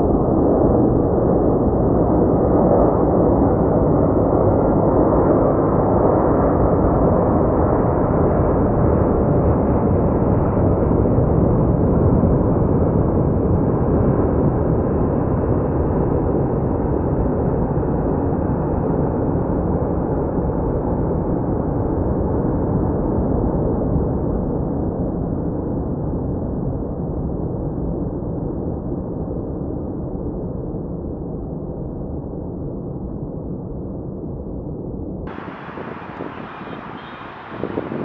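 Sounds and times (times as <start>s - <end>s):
jet engine rush: 35.3s - 38.0s.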